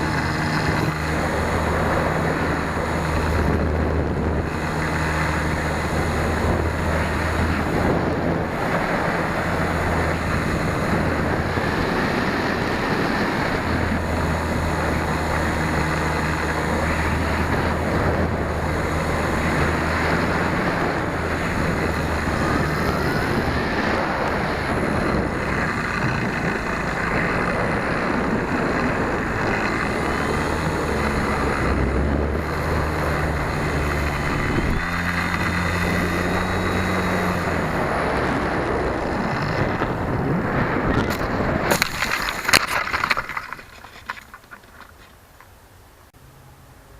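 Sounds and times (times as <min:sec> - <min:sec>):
low drone: 0:00.0 - 0:43.1
electric motor and propeller whine: 0:00.0 - 0:43.6
airstream rushing over microphone: 0:00.0 - 0:46.9.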